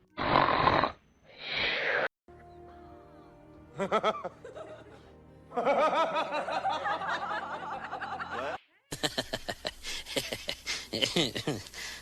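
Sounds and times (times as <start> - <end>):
snickering laughter: 5.6 - 11.8.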